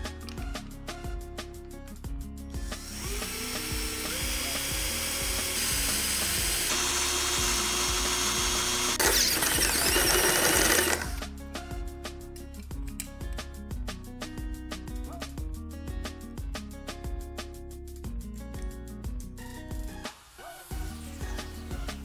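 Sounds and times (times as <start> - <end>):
background music with steady beat: 0.0 - 22.0
electric drill boring through metal: 2.7 - 11.2.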